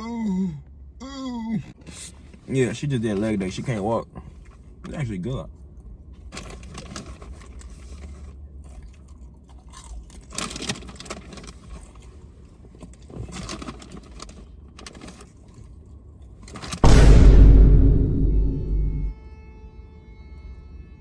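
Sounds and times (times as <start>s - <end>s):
popcorn being chewed: 3.4s - 16.8s
steady low rumble: 16.8s - 19.2s.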